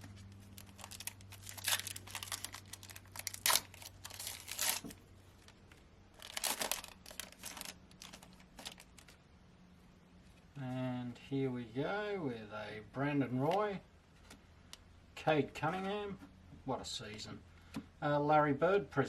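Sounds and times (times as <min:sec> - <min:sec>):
plastic wrapper tearing and crinkling: 0:00.0 - 0:09.2.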